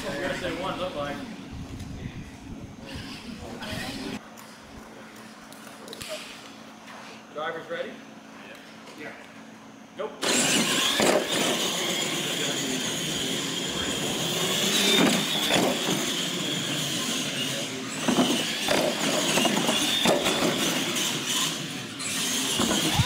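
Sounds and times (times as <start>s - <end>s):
toy truck motor whine: 10.2s - 23.0s.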